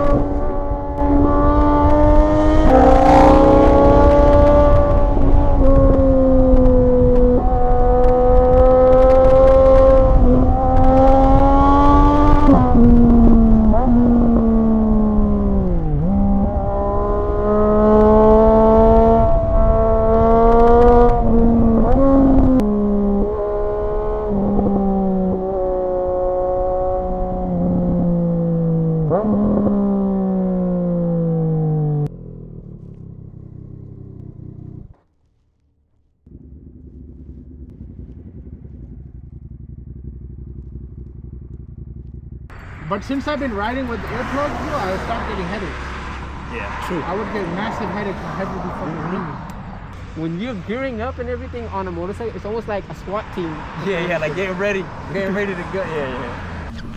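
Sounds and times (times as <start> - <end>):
motorcycle engine revving through gears: 0.0 - 56.9.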